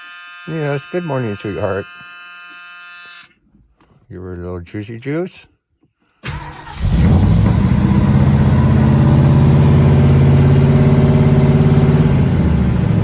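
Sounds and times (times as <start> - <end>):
engine starting and idling: 6.2 - 13.0.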